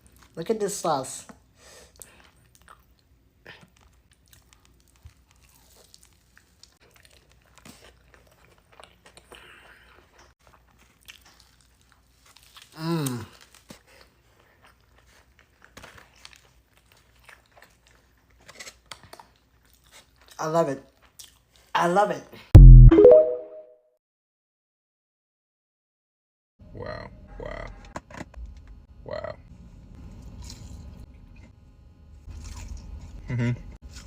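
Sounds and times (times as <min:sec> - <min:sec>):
chewing and crunching food: 0:00.0 - 0:00.5, 0:01.2 - 0:21.8, 0:29.9 - 0:31.6, 0:32.2 - 0:34.0.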